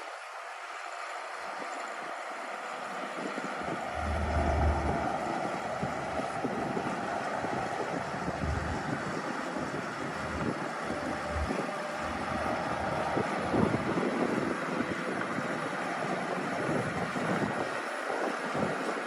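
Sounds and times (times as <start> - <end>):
wind buffeting microphone: 3.2 - 19.0
bulldozer diesel engine running: 3.8 - 17.4.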